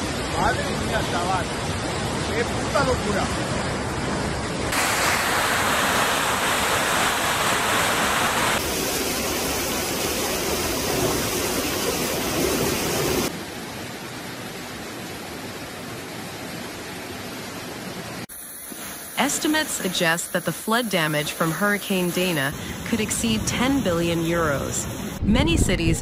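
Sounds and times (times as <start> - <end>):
rushing floodwater: 0.0 - 18.3.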